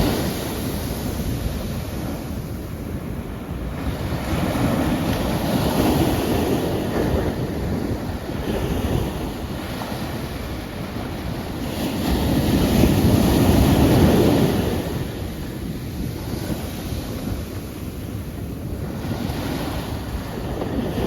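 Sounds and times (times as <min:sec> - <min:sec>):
ocean waves washing in: 0:00.0 - 0:21.0.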